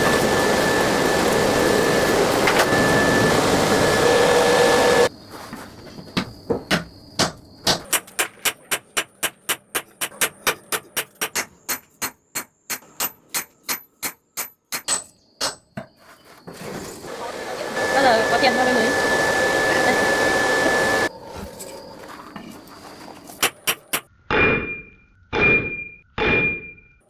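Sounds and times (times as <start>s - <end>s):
loud rushing noise: 0.0s - 5.1s
hammer striking metal on anvil: 7.2s - 15.6s, 23.4s - 26.8s.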